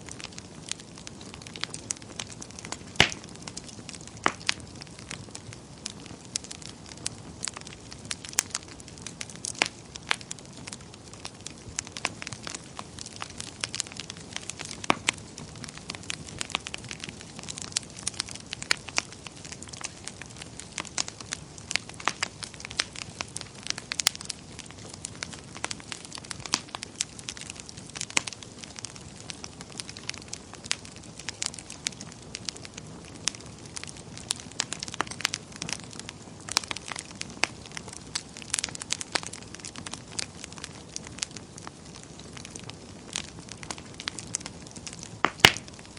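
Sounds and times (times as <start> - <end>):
flames rushing: 0.0 - 45.9
wood fire crackling and popping: 0.0 - 45.9.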